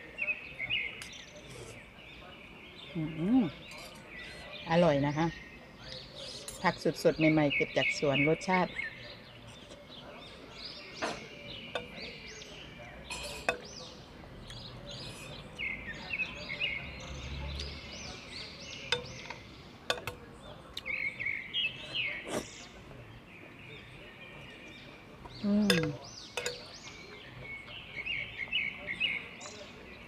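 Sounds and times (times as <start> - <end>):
birds chirping and singing: 0.0 - 30.0
cutlery clicking on glass dish: 18.9 - 20.2, 25.7 - 26.6.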